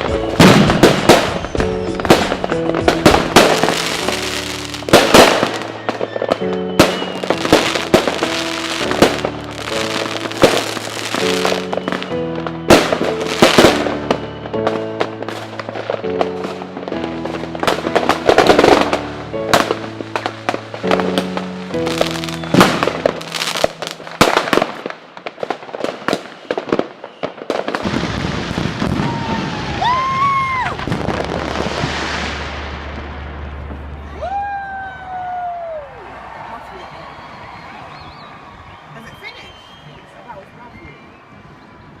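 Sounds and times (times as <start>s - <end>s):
music with changing chords: 0.0s - 24.4s
fireworks bangs and crackles: 0.0s - 40.9s
whistling tones rising and falling: 5.6s - 8.0s, 22.2s - 23.0s, 34.1s - 41.9s.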